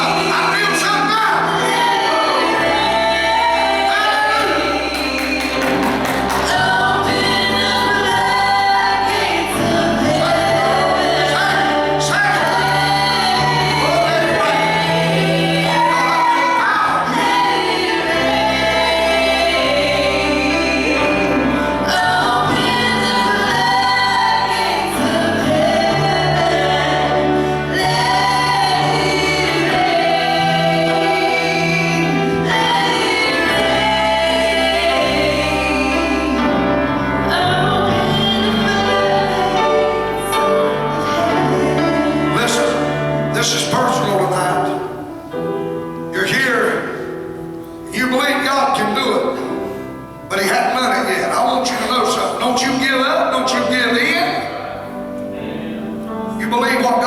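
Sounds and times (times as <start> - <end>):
gospel choir singing: 0.0 - 57.0.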